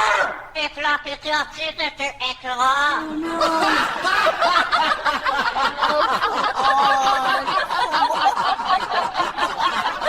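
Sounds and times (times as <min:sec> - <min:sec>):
people laughing: 0:03.0 - 0:10.0.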